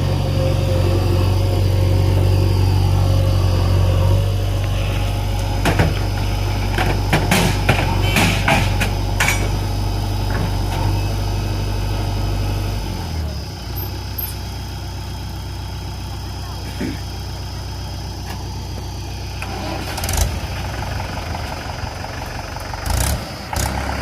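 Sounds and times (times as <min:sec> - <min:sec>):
diesel engine running: 0:00.0 - 0:24.0
sharp knocks and clanks: 0:05.4 - 0:09.6.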